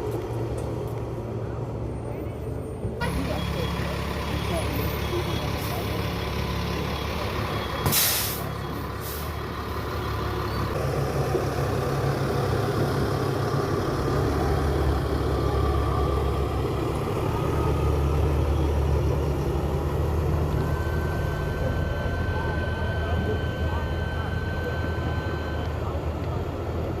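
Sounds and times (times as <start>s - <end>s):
diesel engine running: 0.0s - 27.0s
air brake hiss: 7.8s - 9.4s.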